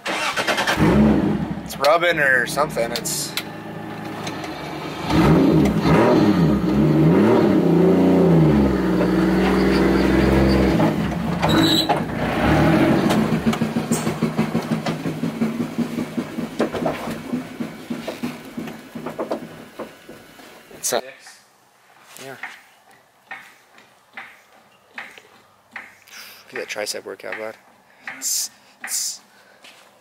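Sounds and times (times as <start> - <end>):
car engine revving: 0.1 - 20.1.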